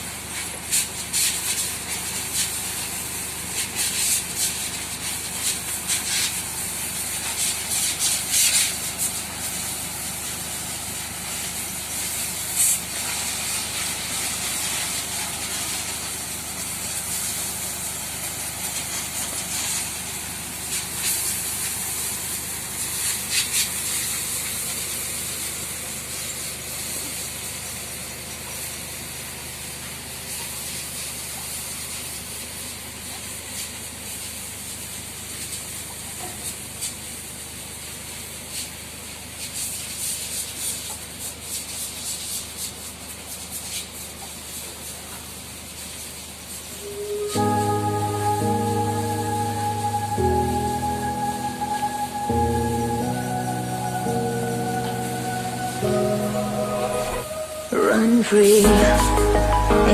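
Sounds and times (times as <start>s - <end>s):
water spraying from hose: 0.0s - 47.1s.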